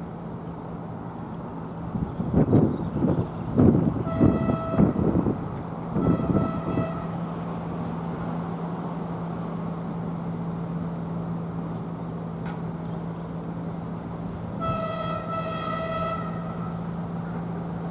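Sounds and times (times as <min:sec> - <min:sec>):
low train hum: 0:00.0 - 0:17.9
train horn blasts: 0:04.0 - 0:05.2, 0:05.9 - 0:07.2, 0:14.6 - 0:16.9.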